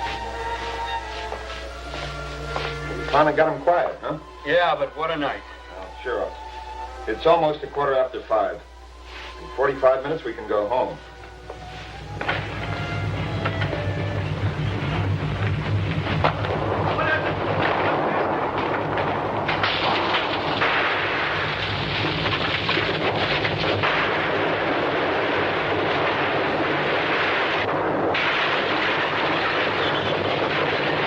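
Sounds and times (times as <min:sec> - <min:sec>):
deep earthquake rumble: 0:00.0 - 0:31.0
crashes of buildings collapsing: 0:09.4 - 0:31.0.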